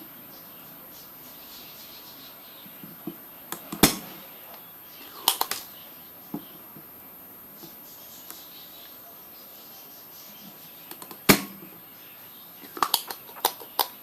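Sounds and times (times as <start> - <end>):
faint steady hiss: 0.0 - 14.0
hard objects clicking and knocking: 12.6 - 14.0.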